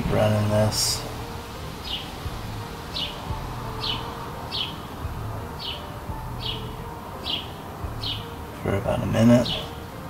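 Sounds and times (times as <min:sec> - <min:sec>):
small bird chirping: 0:01.8 - 0:08.4.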